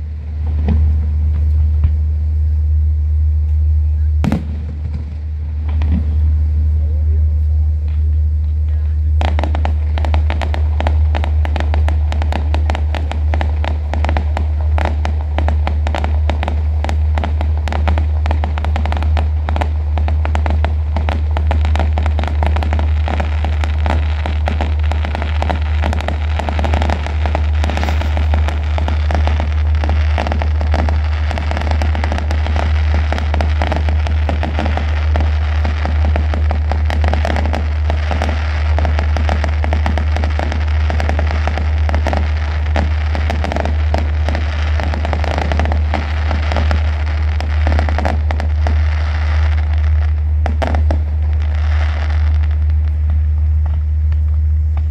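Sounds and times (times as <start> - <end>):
fireworks bangs and crackling: 0.0 - 2.5, 3.4 - 54.9
steady low drone: 0.0 - 54.9.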